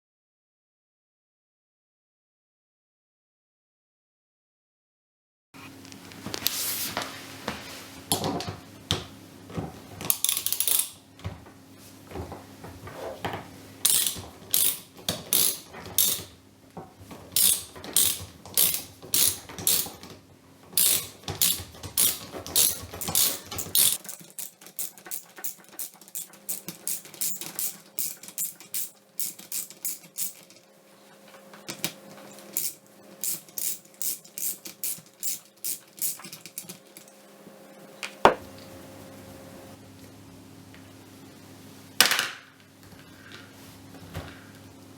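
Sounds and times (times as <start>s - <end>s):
ratchet wrench clicking: 10.1s - 11.0s, 13.9s - 16.3s, 17.4s - 20.0s, 20.8s - 30.6s, 32.6s - 36.6s.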